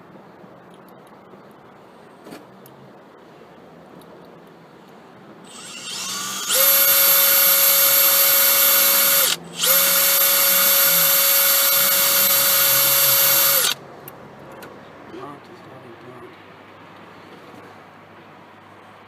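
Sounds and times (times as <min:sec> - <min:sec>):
cordless drill drilling: 0:05.5 - 0:13.8.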